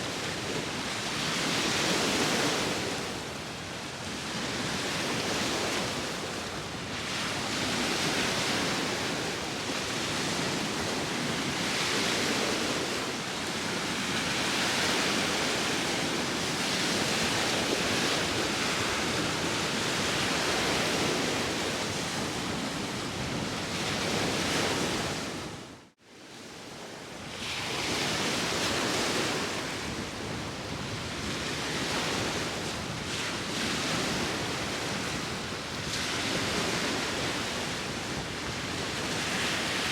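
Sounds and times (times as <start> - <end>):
sea waves washing ashore: 0.0 - 39.9
wind: 0.0 - 39.9.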